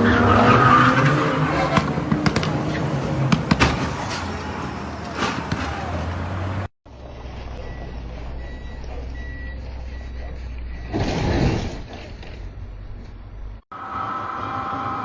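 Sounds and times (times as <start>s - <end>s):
vehicle engine and road hum: 0.0s - 15.0s
faint high beep: 7.1s - 11.0s
loud harsh noise: 13.7s - 15.0s.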